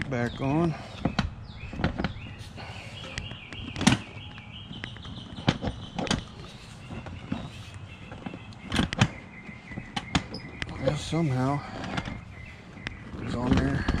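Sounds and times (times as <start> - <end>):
knocks and clunks of motorcycle seat: 1.0 - 2.4, 3.0 - 11.1.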